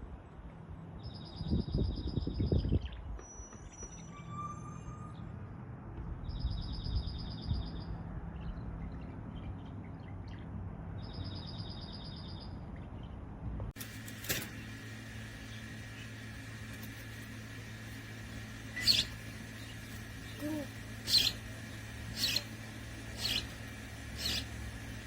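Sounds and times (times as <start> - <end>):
low steady hum: 12.5 - 25.0
songbird trilling: 18.7 - 25.0.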